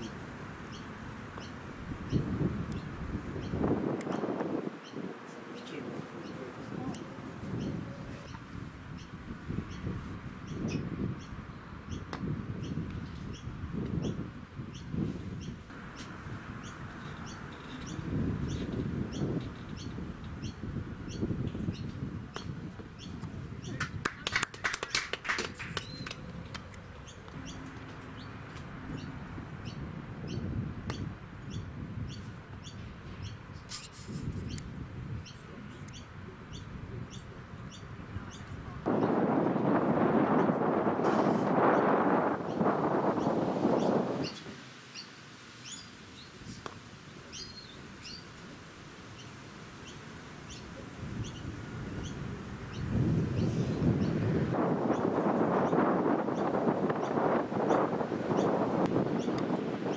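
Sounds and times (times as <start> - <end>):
birds chirping: 0.0 - 48.4, 49.1 - 59.9
low outdoor background: 0.0 - 59.9
sharp clicks and rapid calls: 23.2 - 27.8.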